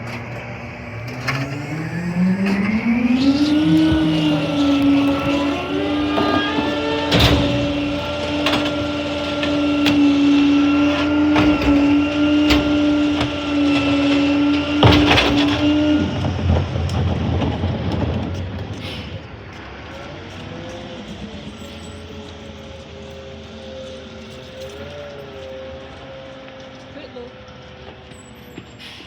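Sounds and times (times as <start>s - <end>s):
low engine rumble: 0.0s - 28.8s
garbage truck whine: 0.0s - 29.0s
clanks and knocks: 2.4s - 19.7s.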